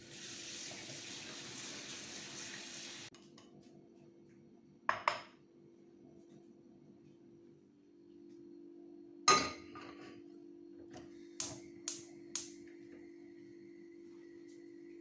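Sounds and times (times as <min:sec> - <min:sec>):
dish set down with ringing knock: 0:04.9 - 0:05.3, 0:09.3 - 0:09.9
steady hum: 0:05.6 - 0:15.0.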